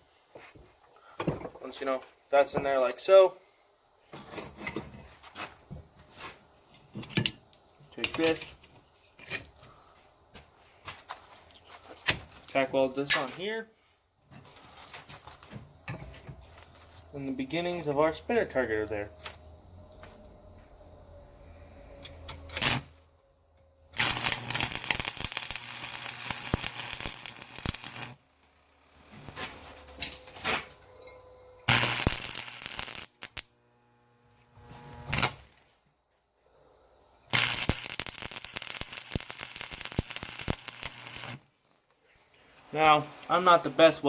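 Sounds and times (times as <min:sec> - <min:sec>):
arc welding crackling: 0:22.6 - 0:23.0, 0:24.0 - 0:30.4, 0:31.7 - 0:35.7, 0:37.3 - 0:41.5.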